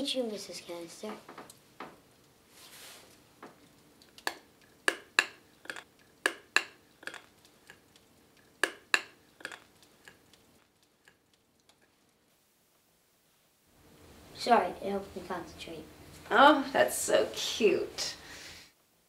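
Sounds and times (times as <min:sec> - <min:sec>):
sharp clicks: 0:03.7 - 0:11.8.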